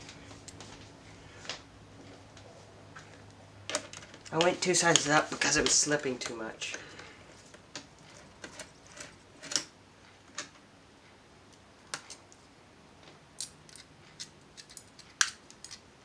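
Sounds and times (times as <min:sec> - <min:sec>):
plastic laptop parts handled: 0:03.7 - 0:09.7.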